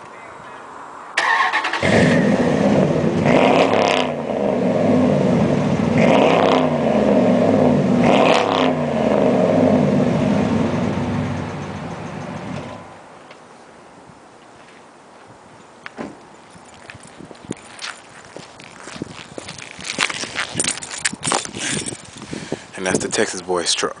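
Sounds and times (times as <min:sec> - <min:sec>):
engine revving: 0:01.2 - 0:12.8.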